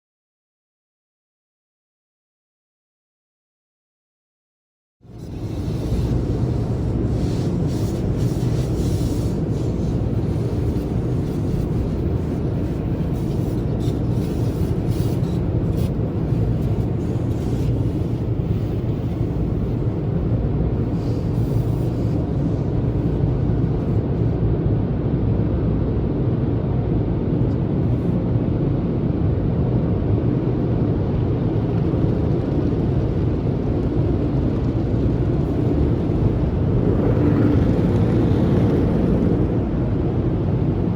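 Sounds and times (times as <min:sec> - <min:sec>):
car wash machinery rumble: 0:05.0 - 0:25.1, 0:29.2 - 0:40.9.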